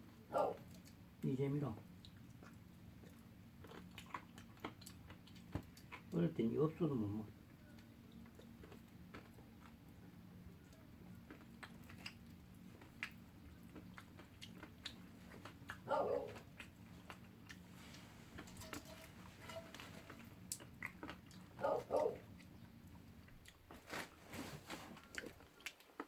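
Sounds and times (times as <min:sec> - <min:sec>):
chewing and crunching: 0:00.1 - 0:26.0
firewood crackling: 0:15.0 - 0:25.7.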